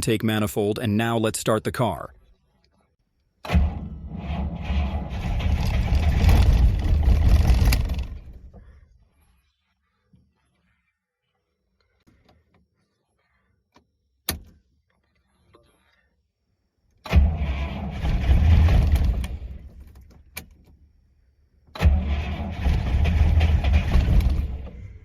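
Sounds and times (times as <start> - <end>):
engine cranking and firing: 3.4 - 8.8, 17.0 - 20.7, 21.7 - 25.0.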